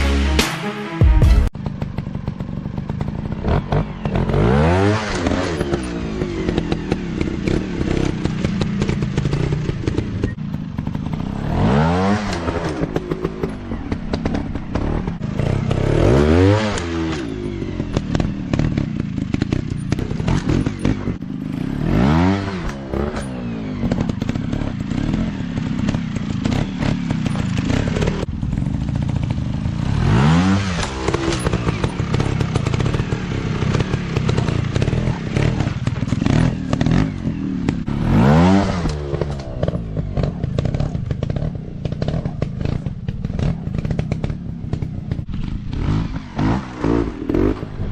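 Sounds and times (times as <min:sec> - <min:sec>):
dirt bike engines revving: 0:01.6 - 0:47.9.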